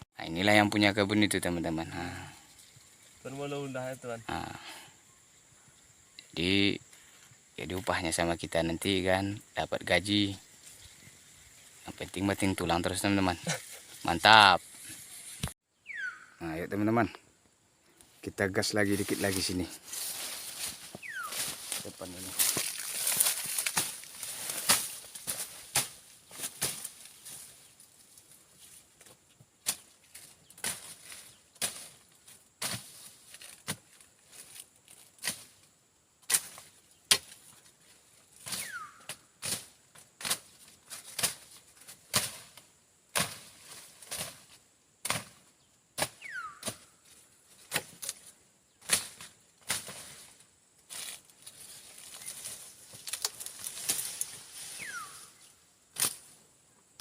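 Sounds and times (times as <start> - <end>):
high insect drone: 0.2 - 57.0
machete slashing through brush: 20.0 - 27.4, 38.4 - 41.5, 42.1 - 44.4, 48.8 - 50.2, 56.0 - 56.3.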